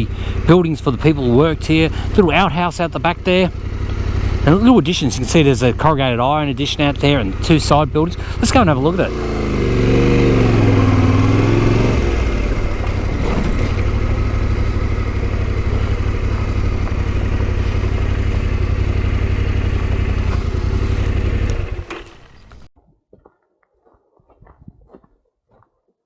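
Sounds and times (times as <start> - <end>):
motorcycle engine revving: 0.0 - 22.7.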